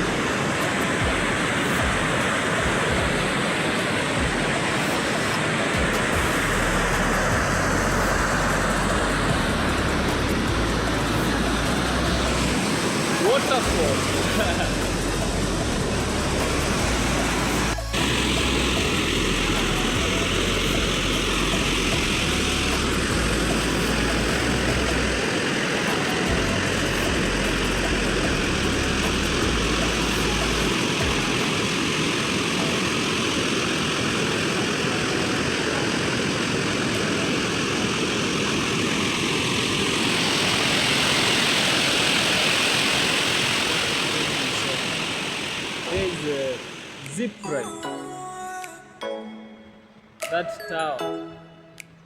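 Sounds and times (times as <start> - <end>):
waterfall and river rushing: 0.0 - 47.4
low rumble: 13.7 - 25.3.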